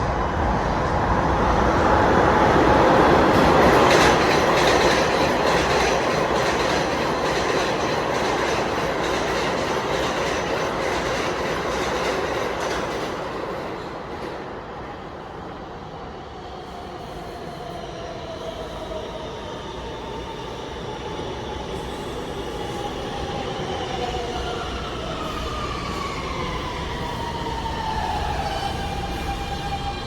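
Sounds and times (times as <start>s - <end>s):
subway train wheels clacking: 0.0s - 30.0s.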